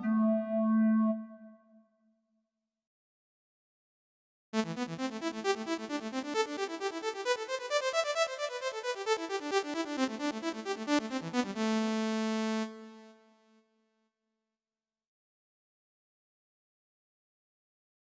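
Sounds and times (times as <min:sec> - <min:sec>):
held synthesizer chord: 0:00.0 - 0:01.3, 0:04.6 - 0:13.3
keyboard synthesizer repeated short notes: 0:00.0 - 0:01.4, 0:04.6 - 0:13.1.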